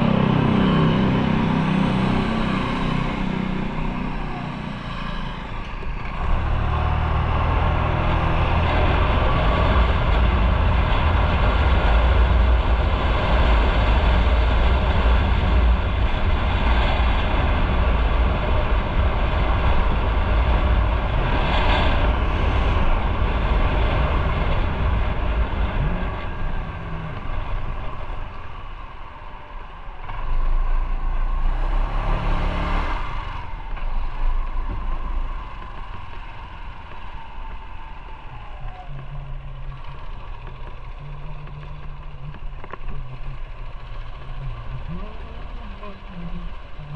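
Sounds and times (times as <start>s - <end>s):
wind noise: 0.0s - 46.9s
motorcycle engine running: 33.0s - 46.9s.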